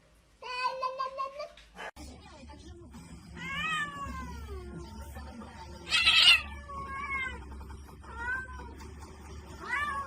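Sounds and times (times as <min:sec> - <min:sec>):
cat meowing: 0:05.9 - 0:07.4.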